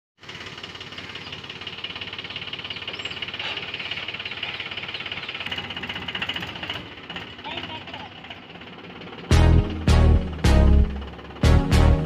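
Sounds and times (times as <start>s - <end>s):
tractor diesel engine running: 0.2s - 12.0s.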